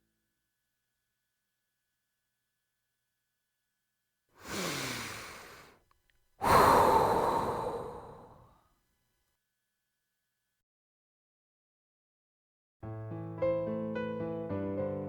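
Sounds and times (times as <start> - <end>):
person sighing: 4.4 - 5.8, 6.4 - 8.5.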